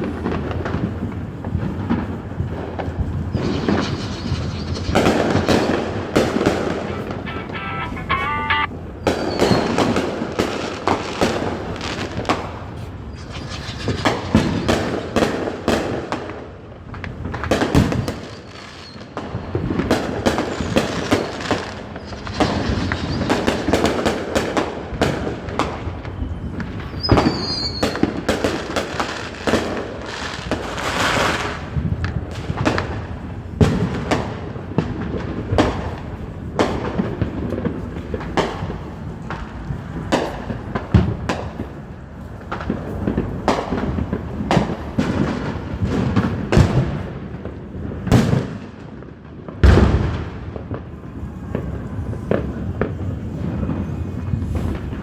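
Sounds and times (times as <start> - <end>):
fireworks bangs and booms: 0.0 - 55.0
fireworks crackling: 0.0 - 55.0
high firework whistle: 3.3 - 9.8.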